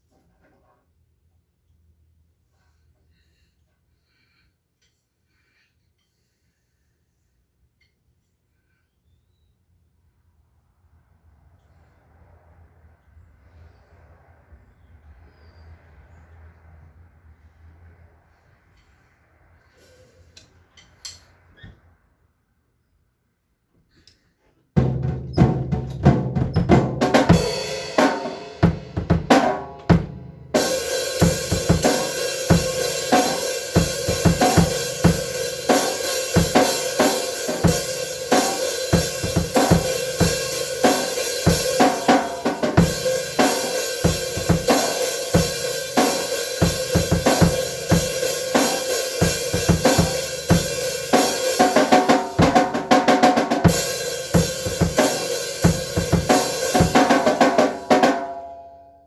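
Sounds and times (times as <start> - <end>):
rapid drum strikes: 24.8 - 58.4
cymbal wash: 30.0 - 52.6, 53.6 - 58.7.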